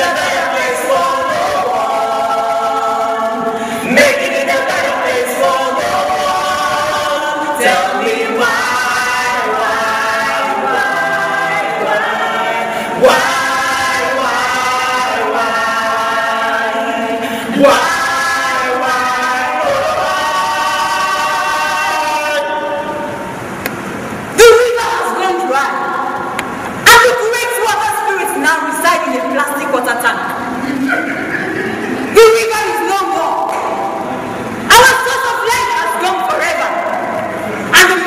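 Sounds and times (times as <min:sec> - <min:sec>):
group of voices singing: 0:00.0 - 0:23.7.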